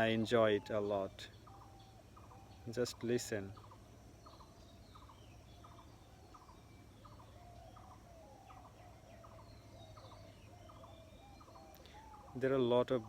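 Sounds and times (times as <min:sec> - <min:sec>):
whistled bird notes: 0:00.0 - 0:13.0.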